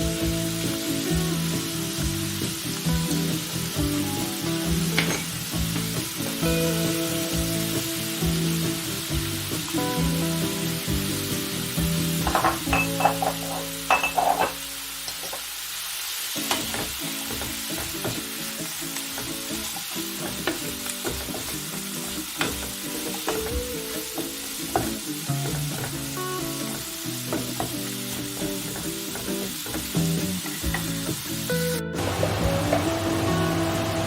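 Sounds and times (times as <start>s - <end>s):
food sizzling in a pan: 0.0s - 34.0s
soft background music: 16.2s - 34.0s.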